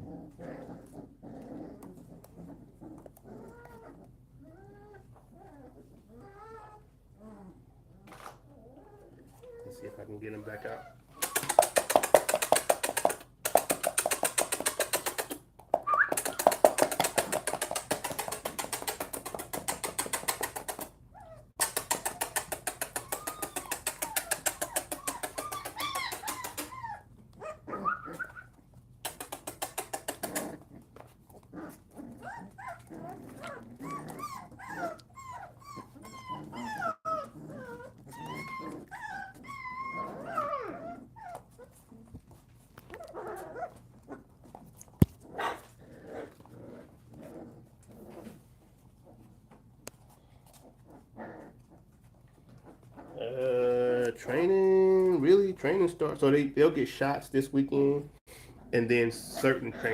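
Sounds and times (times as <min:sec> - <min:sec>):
puppies yelping: 0:00.0 - 0:07.6, 0:10.6 - 0:13.1, 0:14.0 - 0:42.1, 0:42.8 - 0:48.2, 0:59.4 - 0:59.9
puppies whimpering: 0:00.0 - 0:07.7, 0:08.4 - 0:11.6, 0:21.1 - 0:28.7, 0:31.7 - 0:42.2, 0:59.3 - 0:59.9.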